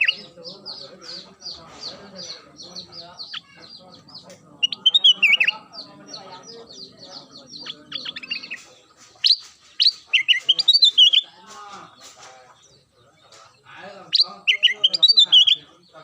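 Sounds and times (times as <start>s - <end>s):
soft bird chatter: 0.0s - 16.0s
bird singing whistled notes: 6.8s - 11.3s, 14.1s - 15.7s.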